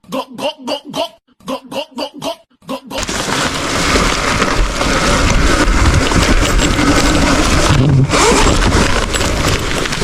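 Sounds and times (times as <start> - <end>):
electric dirt bike rushing: 3.0 - 10.0.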